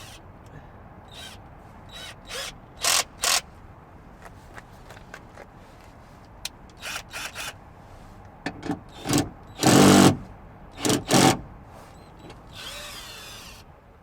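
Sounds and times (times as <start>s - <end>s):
cordless drill bursts: 0.0s - 0.2s, 1.1s - 3.4s, 6.8s - 7.6s, 8.9s - 11.4s, 12.0s - 13.7s.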